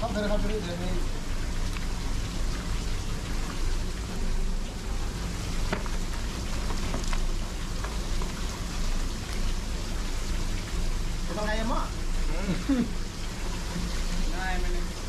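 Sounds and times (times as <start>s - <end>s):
stream water over rocks: 0.0s - 15.0s
sharp clicks and splashes: 1.1s - 11.5s.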